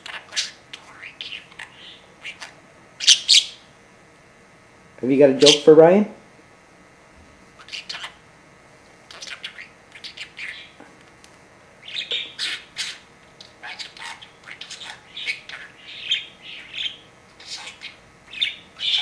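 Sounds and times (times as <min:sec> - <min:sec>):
budgerigar chattering: 0:00.0 - 0:03.6, 0:07.6 - 0:08.2, 0:09.1 - 0:10.8, 0:11.8 - 0:19.0.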